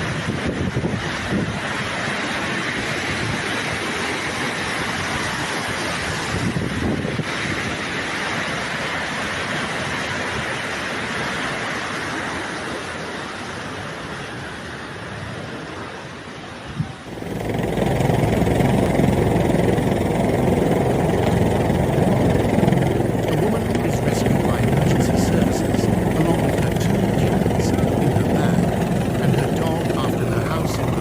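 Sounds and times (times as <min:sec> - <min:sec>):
wind buffeting microphone: 0:05.0 - 0:07.9, 0:16.7 - 0:31.0
floodwater rushing: 0:17.1 - 0:31.0.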